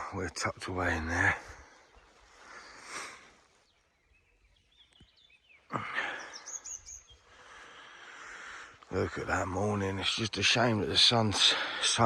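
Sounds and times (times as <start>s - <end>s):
faint bird chirps: 0.0s - 11.8s.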